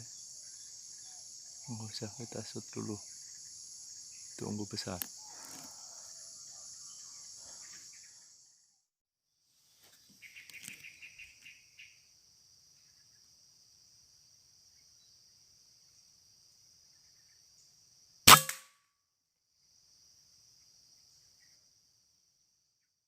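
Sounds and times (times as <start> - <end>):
high insect drone: 0.0 - 8.6, 10.4 - 18.3
air rifle shot: 18.3 - 18.7.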